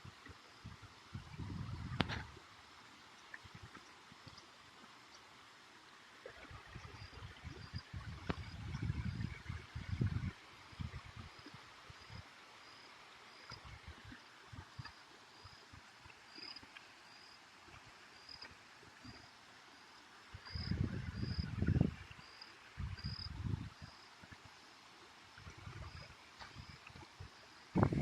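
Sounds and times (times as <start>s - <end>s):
wind rumbling on microphone: 0.0s - 2.4s, 6.4s - 12.2s, 20.3s - 24.4s, 25.4s - 28.0s.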